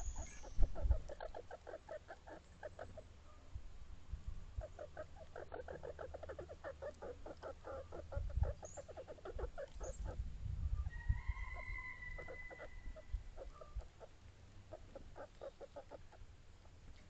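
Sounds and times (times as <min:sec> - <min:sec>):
wind rumble on microphone: 0:00.0 - 0:01.3, 0:08.0 - 0:08.8, 0:09.4 - 0:14.0
chicken clucking: 0:00.0 - 0:03.1, 0:04.6 - 0:10.2, 0:10.9 - 0:16.2.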